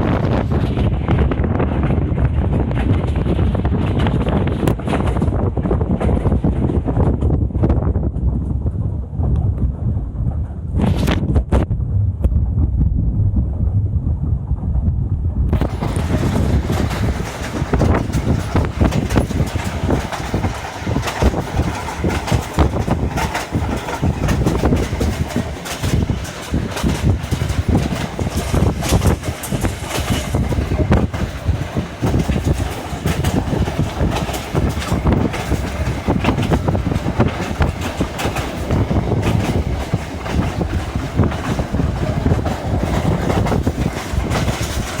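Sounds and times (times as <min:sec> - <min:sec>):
train rumbling on rails: 0:00.0 - 0:45.0
wheel knocks and rattles: 0:15.6 - 0:45.0.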